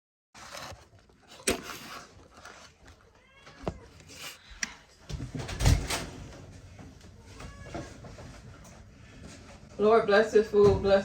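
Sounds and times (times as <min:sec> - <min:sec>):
cat meowing: 0:03.1 - 0:04.0, 0:07.2 - 0:08.0.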